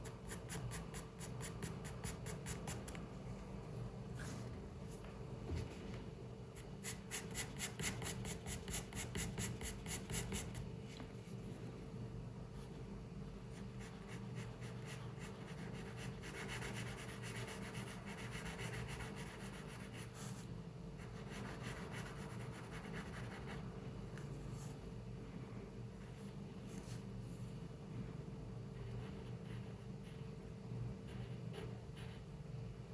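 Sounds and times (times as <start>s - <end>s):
pencil scratching on paper: 6.8s - 10.6s, 13.5s - 20.4s, 21.0s - 23.7s, 31.0s - 32.3s.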